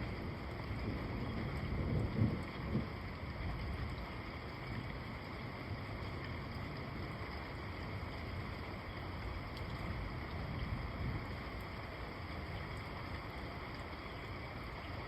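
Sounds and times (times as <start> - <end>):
low thunder rumble: 0.0 - 3.9
steady rain: 0.0 - 15.0.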